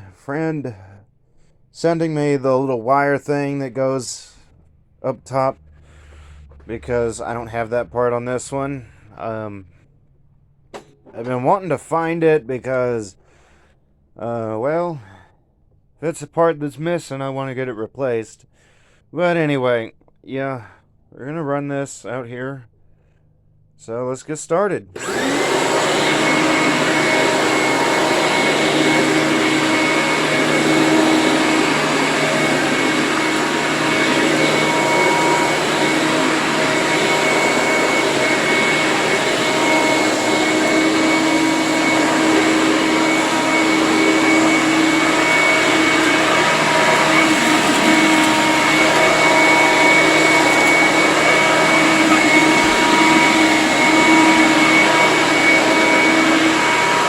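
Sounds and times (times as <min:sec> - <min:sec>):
upright vacuum cleaner running: 0:25.0 - 0:57.0.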